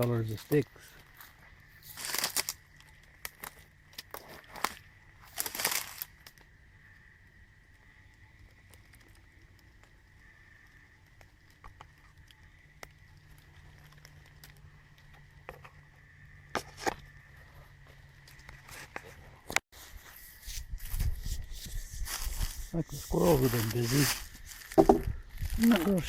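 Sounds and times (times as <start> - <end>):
rustling in dry leaves: 0.3 - 6.4, 12.0 - 15.3, 17.4 - 26.0.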